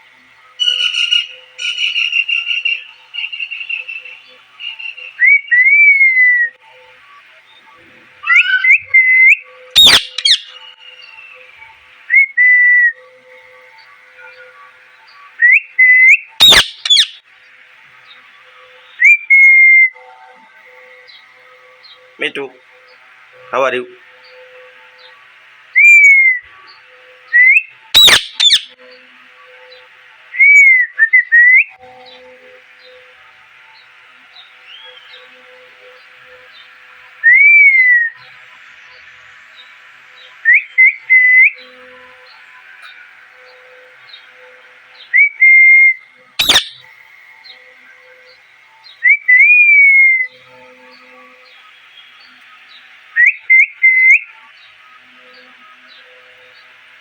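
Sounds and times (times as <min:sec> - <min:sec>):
parrot harsh calls: 0:00.6 - 0:02.8, 0:08.2 - 0:08.8, 0:09.8 - 0:10.7, 0:16.4 - 0:17.2, 0:28.0 - 0:28.8, 0:46.4 - 0:46.8
parrot chirps: 0:00.6 - 0:04.0, 0:08.2 - 0:08.8, 0:09.8 - 0:10.7, 0:16.4 - 0:17.2, 0:28.0 - 0:28.8, 0:46.4 - 0:46.9
parrot whistling: 0:08.2 - 0:10.7, 0:15.4 - 0:17.2, 0:27.4 - 0:28.8, 0:45.1 - 0:46.8.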